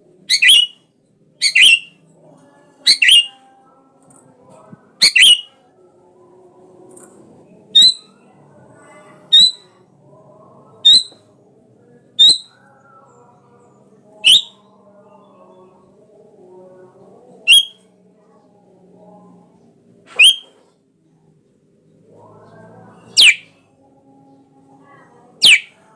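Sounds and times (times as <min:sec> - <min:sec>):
bird giving sharp high calls: 0:00.3 - 0:00.8, 0:01.4 - 0:01.9, 0:20.2 - 0:20.5, 0:25.4 - 0:25.8
faint low murmur: 0:05.6 - 0:25.9.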